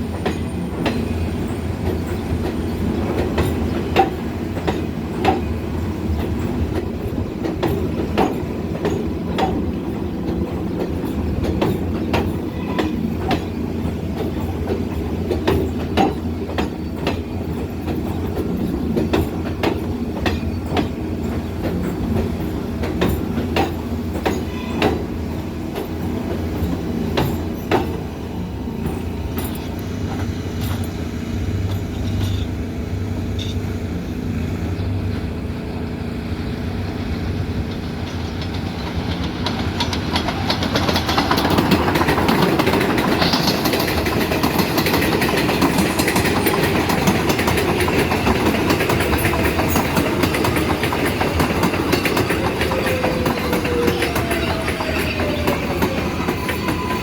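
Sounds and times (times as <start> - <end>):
subway train wheels rumbling: 0.0 - 57.0.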